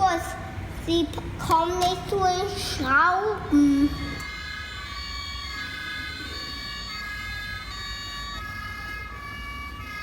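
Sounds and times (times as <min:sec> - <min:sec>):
toy two-tone siren: 0:04.0 - 0:10.0.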